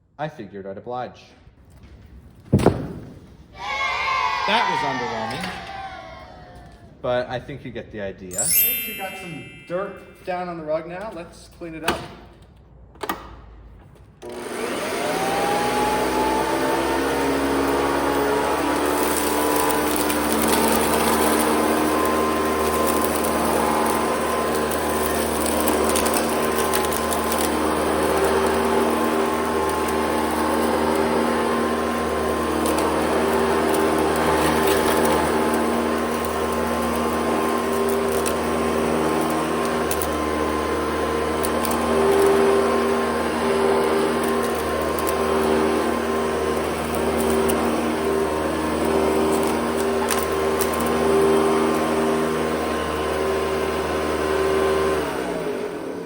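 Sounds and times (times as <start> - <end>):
vacuum cleaner running: 14.2 - 56.0.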